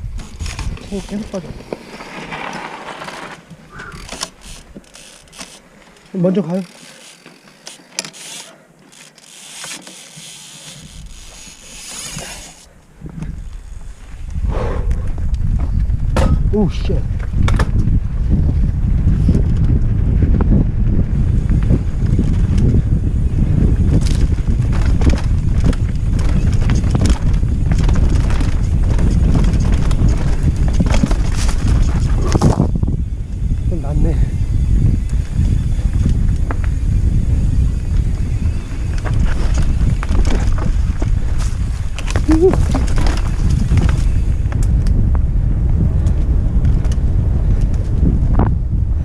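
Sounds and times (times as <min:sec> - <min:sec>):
wind on microphone: 0:00.0 - 0:02.4, 0:03.5 - 0:05.4, 0:10.8 - 0:49.0
bike tyres scraping on dirt: 0:00.0 - 0:16.2, 0:17.1 - 0:49.0
freewheel hub ratcheting: 0:03.8 - 0:12.7.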